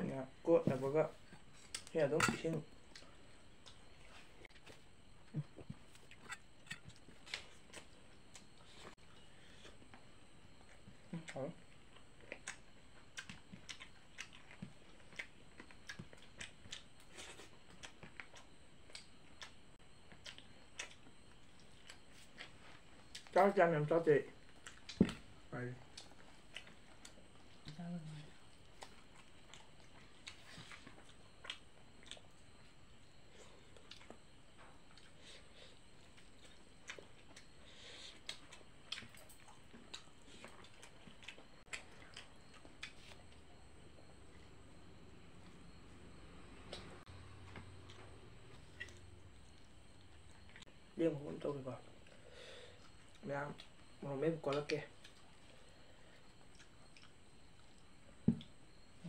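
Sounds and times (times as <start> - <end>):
person chewing with mouth clicks: 10.6 - 23.3, 24.5 - 25.2, 25.8 - 32.5, 33.7 - 34.2, 36.0 - 44.4, 47.5 - 49.1, 54.5 - 58.5.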